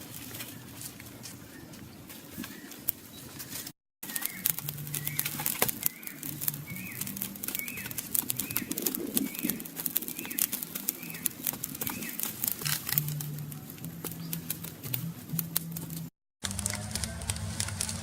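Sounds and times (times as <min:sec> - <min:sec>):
bird chirping call: 0:01.4 - 0:14.8
sharp crackling clicks: 0:02.4 - 0:18.0.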